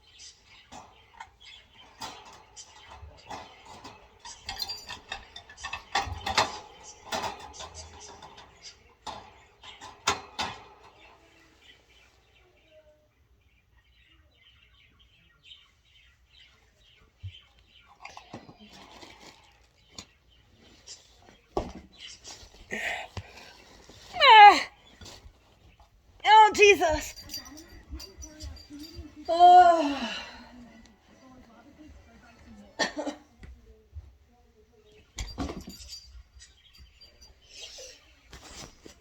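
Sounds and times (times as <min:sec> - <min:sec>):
wire cage parts clinking: 0:00.1 - 0:11.4, 0:26.3 - 0:30.0, 0:35.1 - 0:39.0.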